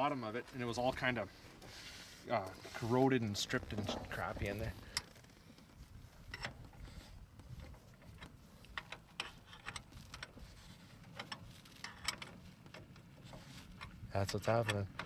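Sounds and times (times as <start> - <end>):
faint low rumble: 2.4 - 8.8.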